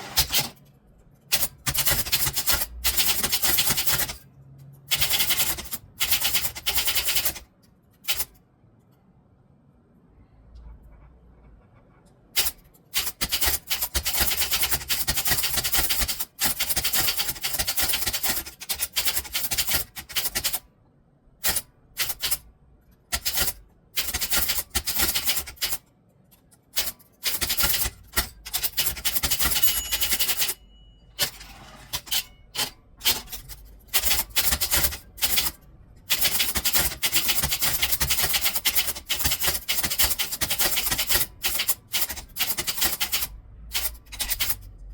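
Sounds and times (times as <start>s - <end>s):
typewriter key strikes: 26.8s - 30.6s, 31.2s - 44.7s
typewriter bell ring: 28.5s - 35.5s, 43.8s - 44.6s.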